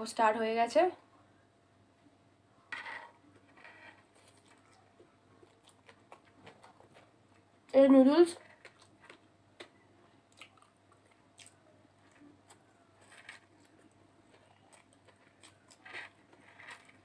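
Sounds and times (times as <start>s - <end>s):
person chewing noodles: 4.2s - 7.4s, 8.6s - 17.0s.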